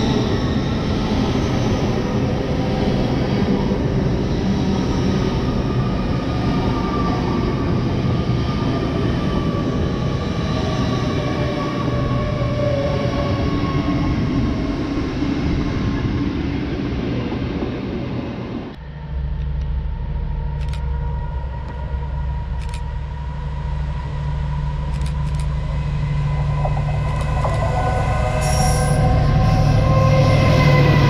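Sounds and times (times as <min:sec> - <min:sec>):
wheels rumbling on rail: 0:00.0 - 0:31.0
faint whining tones: 0:18.7 - 0:31.0.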